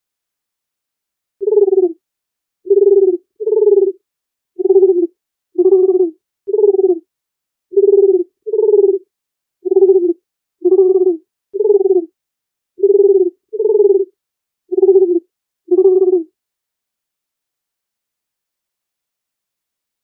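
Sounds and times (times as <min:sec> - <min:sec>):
dove cooing: 0:01.4 - 0:02.0, 0:02.7 - 0:04.0, 0:04.6 - 0:07.0, 0:07.7 - 0:12.2, 0:12.8 - 0:16.3.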